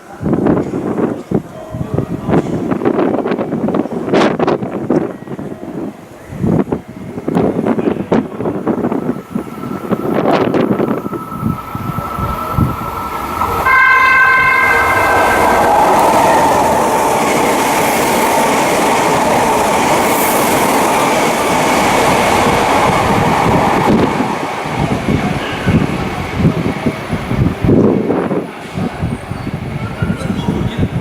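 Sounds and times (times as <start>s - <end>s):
train passing at speed: 0.0s - 31.0s
train horn chord: 13.6s - 16.6s.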